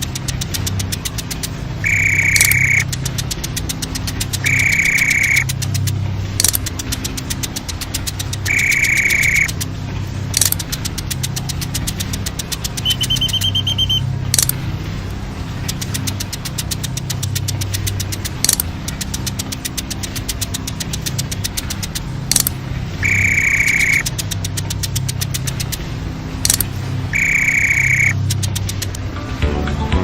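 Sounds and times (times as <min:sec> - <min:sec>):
sharp clicks: 0:00.0 - 0:29.1
fast even ticking: 0:00.0 - 0:29.2
truck engine rumble: 0:00.0 - 0:30.0
long high electronic beeps: 0:01.8 - 0:02.9, 0:04.4 - 0:05.5, 0:08.4 - 0:09.5, 0:12.8 - 0:14.5, 0:22.3 - 0:24.1, 0:26.5 - 0:28.2.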